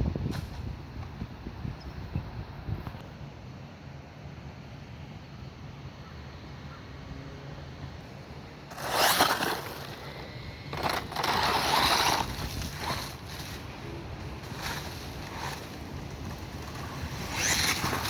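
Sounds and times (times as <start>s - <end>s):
low steady background noise: 0.6s - 18.0s
rc car motor and tyre noise: 7.1s - 18.0s.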